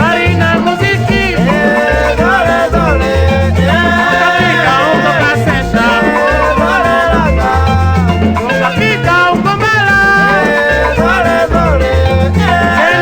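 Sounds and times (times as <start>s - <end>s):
dance band rumba music: 0.0s - 13.0s.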